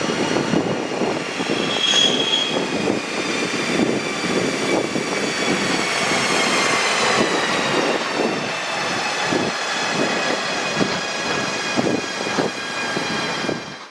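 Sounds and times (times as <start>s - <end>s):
electric locomotive motor whine: 0.0s - 13.9s
wheels clattering on rail: 0.0s - 13.9s.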